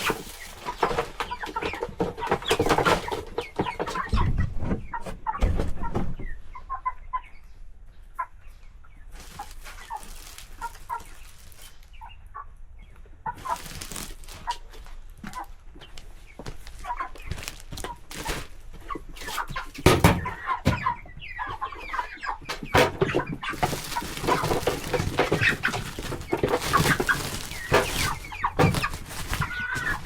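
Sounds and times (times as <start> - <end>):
rustling and knocking: 0.0 - 6.3, 13.4 - 21.6, 22.4 - 30.0
chickens clucking: 0.0 - 30.0.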